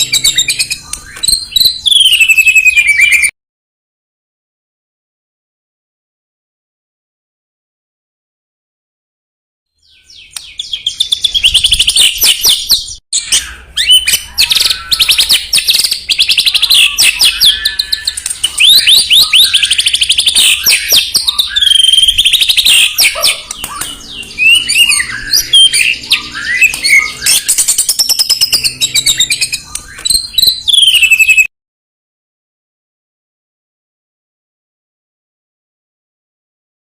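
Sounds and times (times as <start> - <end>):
bird singing whistles and trills: 0.0 - 3.3, 9.8 - 31.5.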